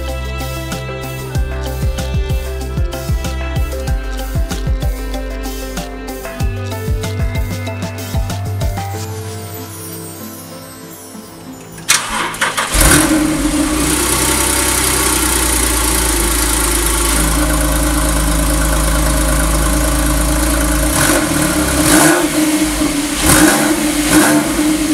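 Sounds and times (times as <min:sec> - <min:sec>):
car engine starting and idling: 0:11.8 - 0:24.9
engine revving in short blips: 0:11.9 - 0:24.9.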